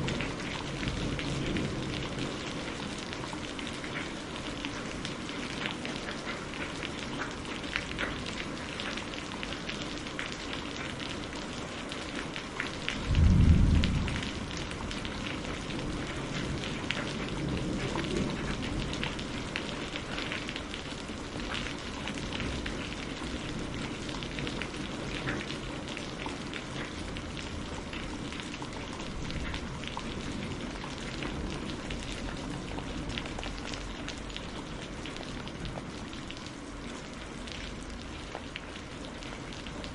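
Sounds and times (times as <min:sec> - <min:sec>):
rain falling: 0:00.0 - 0:39.9
clap of thunder: 0:13.0 - 0:19.1
thunder rumble: 0:13.0 - 0:19.2.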